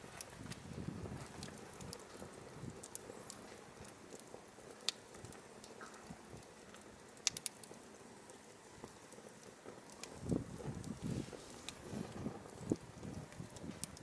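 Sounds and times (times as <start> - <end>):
fire crackles: 0.0 - 14.0
firewood hissing: 0.0 - 14.0.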